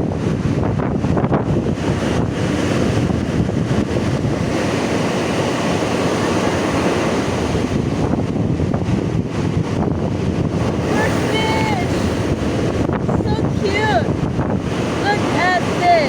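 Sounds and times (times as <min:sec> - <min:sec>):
surf on a beach: 0:00.0 - 0:16.0
wind buffeting microphone: 0:00.0 - 0:16.0.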